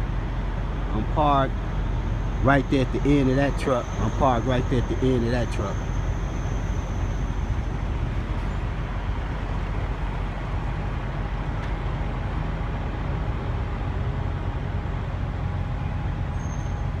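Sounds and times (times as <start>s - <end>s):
faint steady whine: 0.0s - 17.0s
vehicle engine and road rumble: 0.0s - 17.0s.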